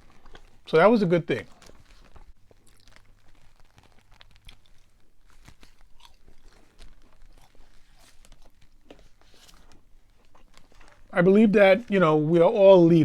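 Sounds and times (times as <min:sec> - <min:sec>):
person chewing crunchy food: 0:00.0 - 0:11.2.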